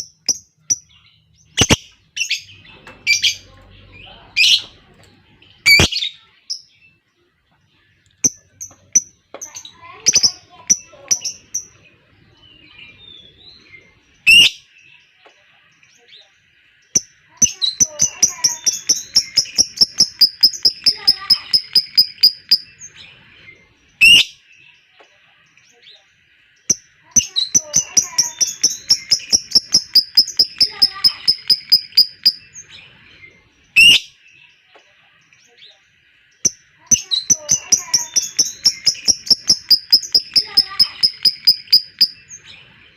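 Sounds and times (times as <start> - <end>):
lovebird chirping chatter: 0.0 - 42.9
lovebird whistles and chirps: 14.2 - 14.7, 17.7 - 22.8, 24.0 - 24.4, 27.4 - 32.6, 33.8 - 34.2, 36.9 - 42.4
lovebird shrill call: 27.8 - 32.6, 37.2 - 42.4.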